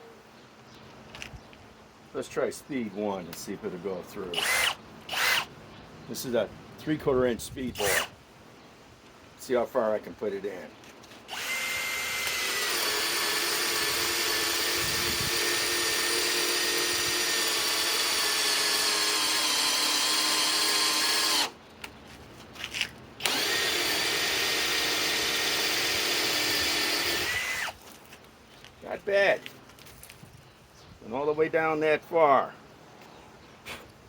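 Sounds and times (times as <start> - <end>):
hammer drill motor whining: 4.4 - 5.5, 7.8 - 8.1, 11.3 - 21.6, 23.2 - 27.8.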